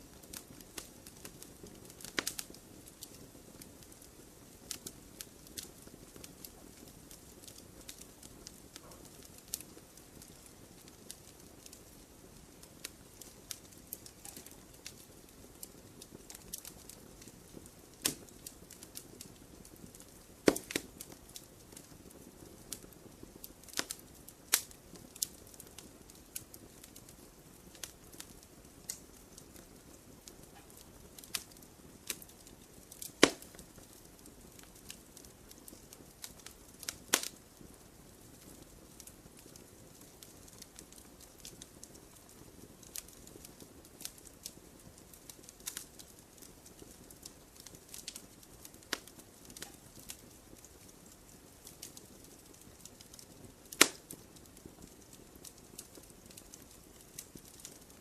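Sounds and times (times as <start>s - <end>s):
campfire crackling and popping: 0.0s - 58.0s
low steady hiss: 0.0s - 58.0s.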